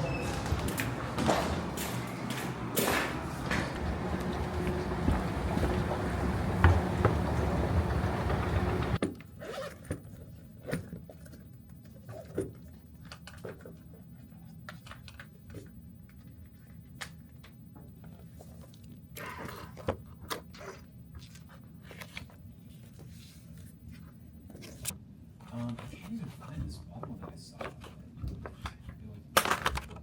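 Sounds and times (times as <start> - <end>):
loud rushing noise: 0.0 - 9.0.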